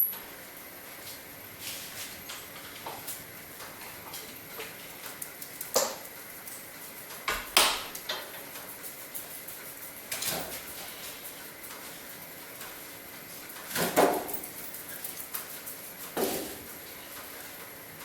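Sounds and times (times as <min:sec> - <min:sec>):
small ticks and crackles: 0:02.1 - 0:07.3.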